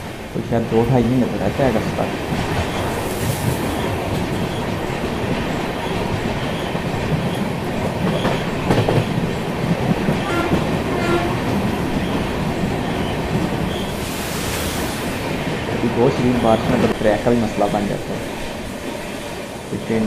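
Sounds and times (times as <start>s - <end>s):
train rumbling on track: 0.0s - 20.0s
wheels clicking over rail joints: 0.9s - 13.9s.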